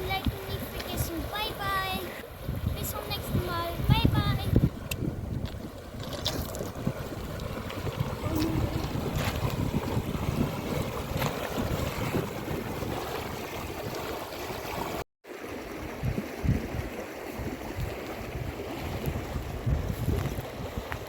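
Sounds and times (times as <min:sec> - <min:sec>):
wind buffeting microphone: 0:00.0 - 0:21.0
river flowing: 0:05.6 - 0:19.6.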